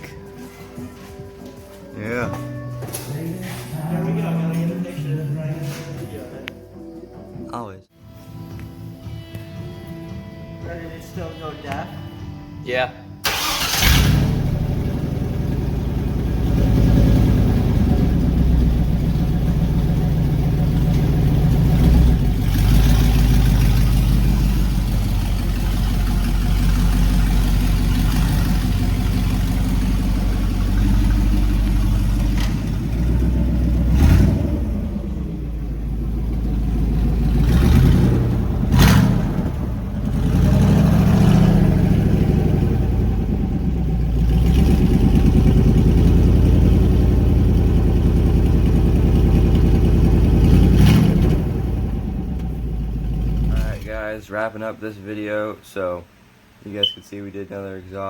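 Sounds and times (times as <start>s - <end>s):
truck engine revving: 13.3s - 53.8s
loud truck engine idling: 15.5s - 38.9s.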